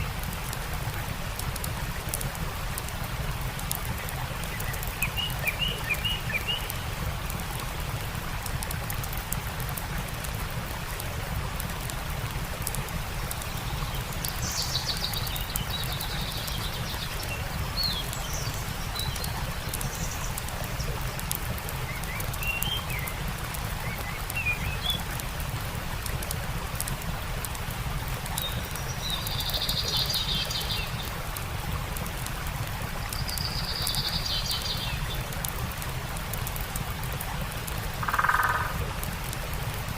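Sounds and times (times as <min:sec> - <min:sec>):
stream rushing: 0:00.0 - 0:39.9
small birds chirping: 0:03.7 - 0:06.9, 0:13.2 - 0:25.2, 0:28.3 - 0:31.2, 0:33.0 - 0:35.5.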